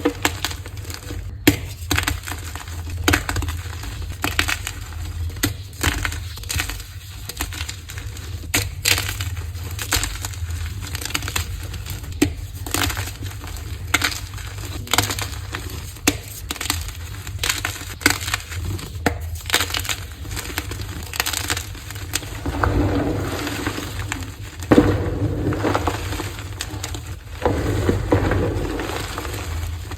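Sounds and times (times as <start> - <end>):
chalk crushed by hand: 21.4 - 29.9.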